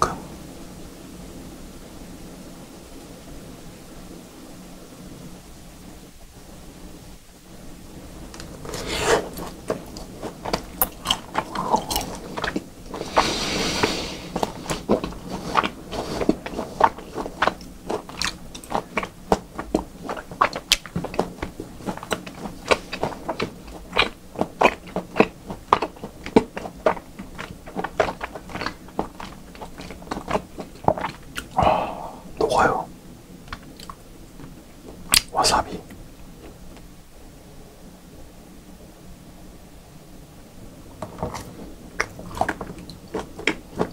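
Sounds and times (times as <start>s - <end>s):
person chewing: 8.4s - 32.9s, 33.5s - 34.0s, 41.0s - 43.9s
mouth clicks: 35.1s - 36.0s.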